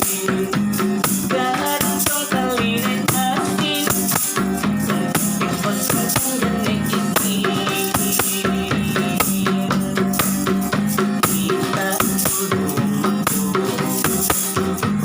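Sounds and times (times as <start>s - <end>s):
shaker rattle: 0.0s - 14.9s
drum: 0.0s - 15.0s
plucked strings: 0.0s - 15.0s.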